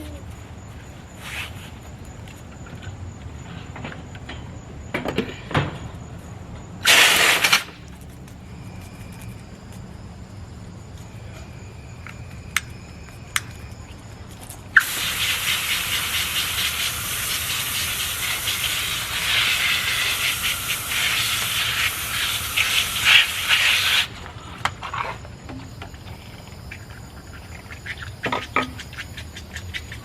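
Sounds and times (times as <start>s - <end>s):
running water spraying: 6.8s - 7.7s, 14.8s - 24.4s.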